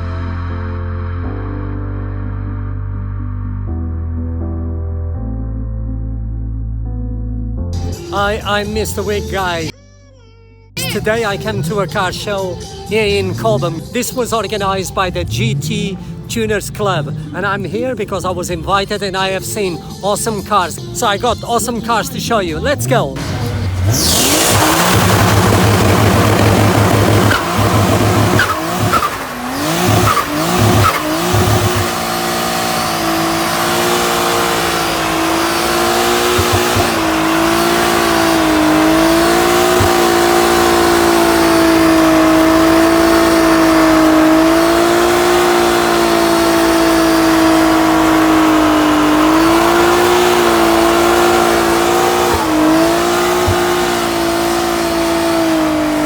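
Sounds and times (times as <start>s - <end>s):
car engine revving: 10.8s - 19.5s, 23.1s - 56.0s
tyre squeal: 23.2s - 56.0s.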